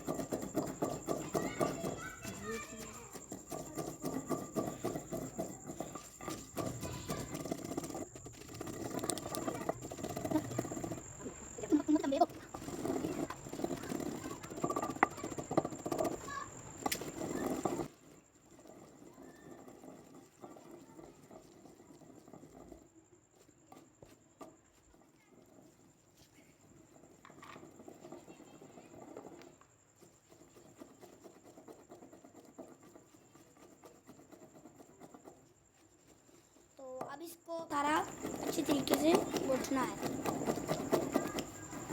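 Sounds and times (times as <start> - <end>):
pestle pounding in a mortar: 0.0 - 22.9, 37.8 - 41.9
pestle scraping: 0.0 - 41.9.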